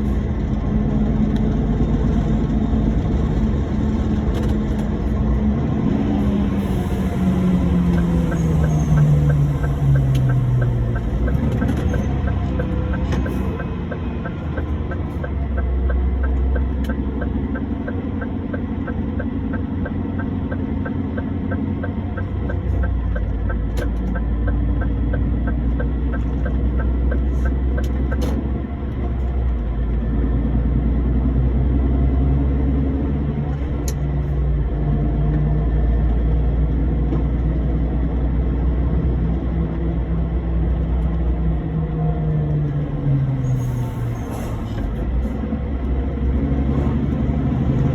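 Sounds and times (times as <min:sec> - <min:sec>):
truck engine rumbling: 0:00.0 - 0:47.9
fast regular ticking: 0:07.9 - 0:28.2.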